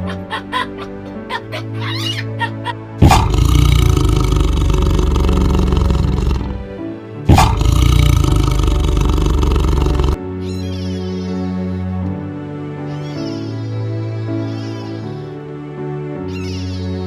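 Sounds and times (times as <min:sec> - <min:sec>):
background music: 0:00.0 - 0:17.0
big cat roaring: 0:03.0 - 0:06.7, 0:07.3 - 0:10.2.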